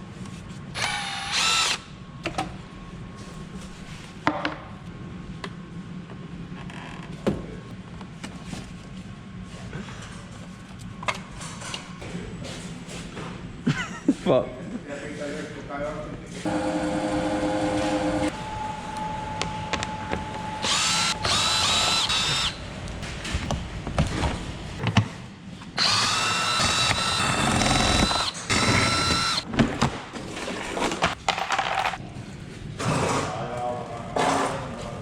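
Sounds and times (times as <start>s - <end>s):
power tool motor whining: 0.8s - 1.8s, 16.5s - 22.6s, 25.8s - 29.4s.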